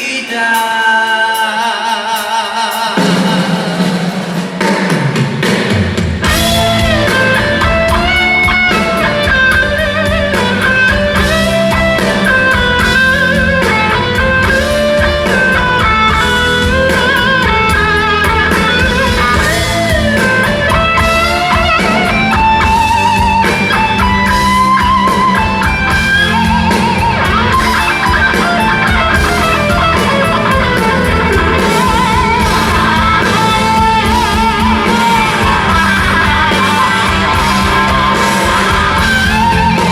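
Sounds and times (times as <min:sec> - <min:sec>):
rock band playing live: 0:00.0 - 0:39.9
lead electric guitar bending: 0:05.9 - 0:39.9.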